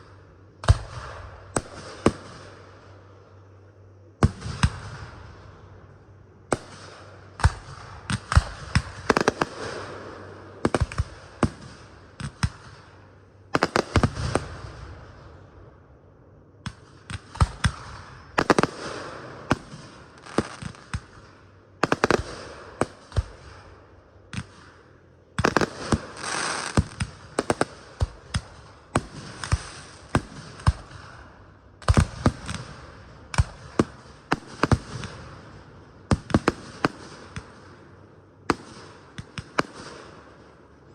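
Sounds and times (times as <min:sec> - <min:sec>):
fireworks crackling and hissing: 0:00.0 - 0:03.6, 0:04.2 - 0:15.7, 0:16.6 - 0:40.9
fireworks bangs: 0:06.5 - 0:13.0, 0:13.6 - 0:15.2, 0:16.7 - 0:23.7, 0:25.4 - 0:37.8.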